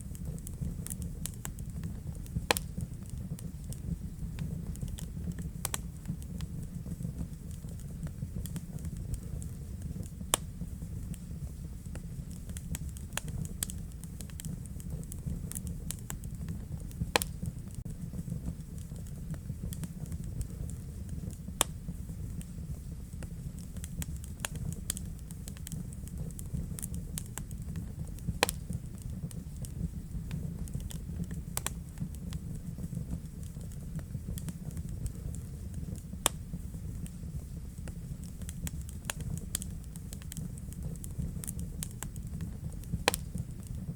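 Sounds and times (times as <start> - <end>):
fire crackling in a fireplace: 0.0 - 43.9.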